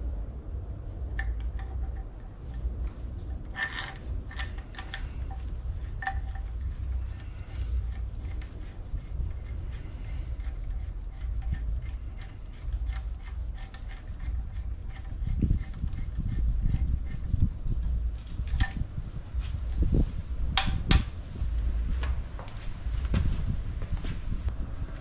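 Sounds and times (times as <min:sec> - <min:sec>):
steady low rumble: 0:00.0 - 0:25.0
small metal parts clinking: 0:03.4 - 0:08.7.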